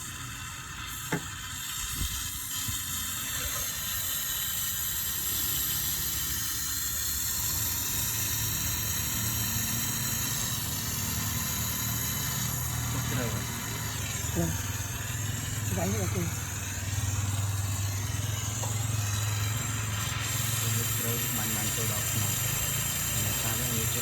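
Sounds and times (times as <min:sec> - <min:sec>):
torch flame hissing: 0:00.0 - 0:24.0.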